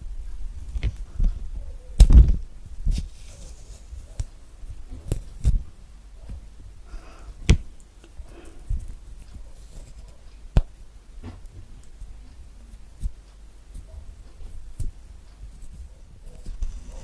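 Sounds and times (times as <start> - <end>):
soft rustling of peel: 0.5 - 5.6.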